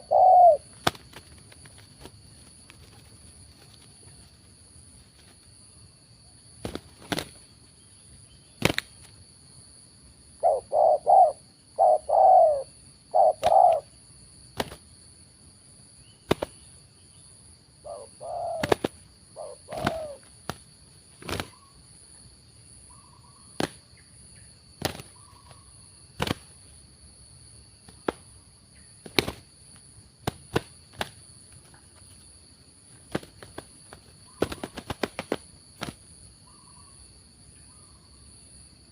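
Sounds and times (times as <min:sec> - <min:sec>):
dove cooing: 0:00.0 - 0:00.8, 0:10.4 - 0:13.9, 0:17.8 - 0:20.3.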